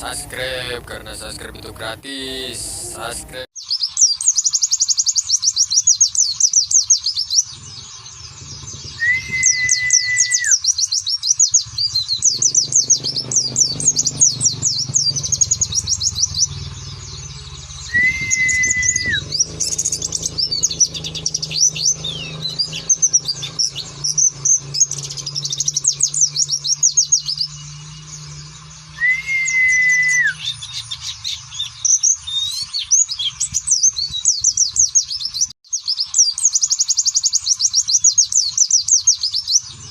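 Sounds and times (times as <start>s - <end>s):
birds twittering: 0.0s - 39.9s
long level whistles: 9.0s - 10.6s, 17.8s - 28.2s, 28.9s - 30.7s.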